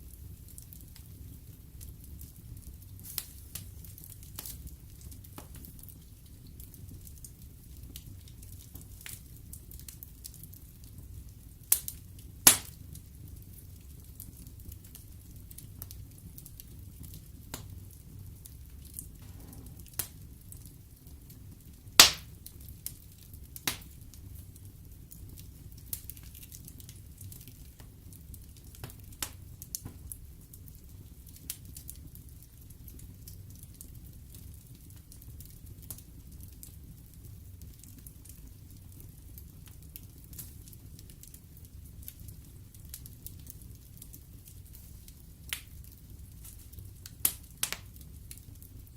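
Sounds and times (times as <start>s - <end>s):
fire crackles and pops: 0.0s - 48.9s
low rumble of flames: 0.0s - 48.9s.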